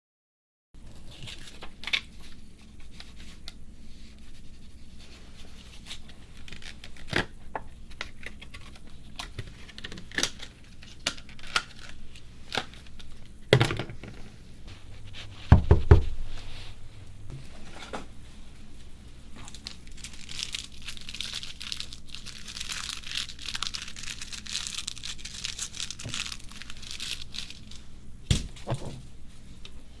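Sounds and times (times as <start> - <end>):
crinkling and crackling: 0.8 - 27.9
heavy low thumps: 14.7 - 17.4.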